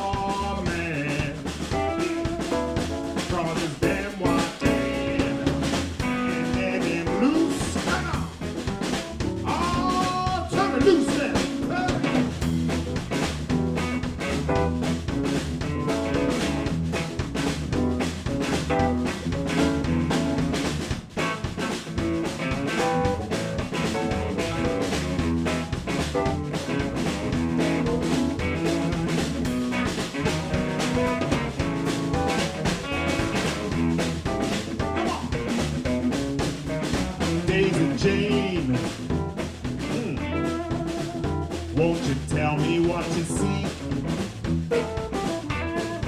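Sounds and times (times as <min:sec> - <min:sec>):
blues band playing instrumental: 0:00.0 - 0:46.0
drum kit steady beat: 0:00.0 - 0:46.0.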